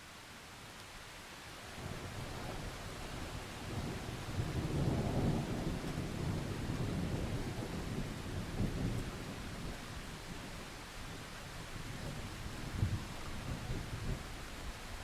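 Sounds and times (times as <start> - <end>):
steady rain: 0.0 - 15.0
rolling thunder: 2.2 - 9.7.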